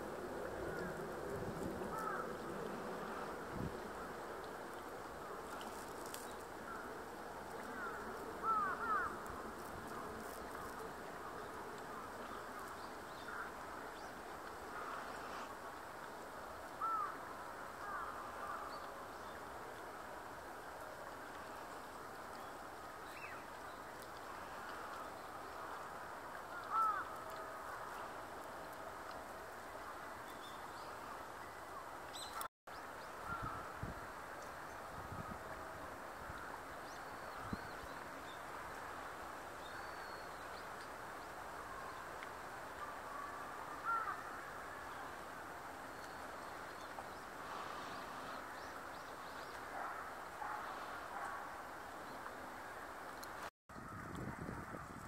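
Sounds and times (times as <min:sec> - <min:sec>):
outdoor background hiss: 0:00.0 - 0:53.5.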